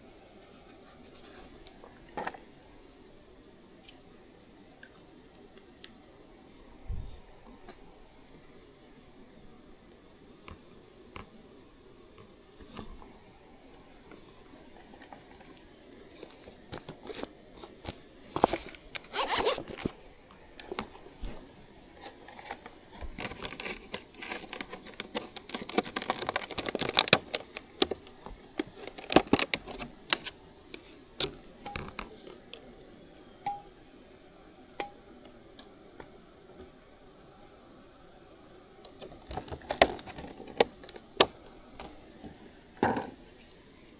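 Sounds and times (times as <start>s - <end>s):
objects being handled: 14.8s - 20.0s, 22.0s - 32.2s, 38.8s - 43.9s.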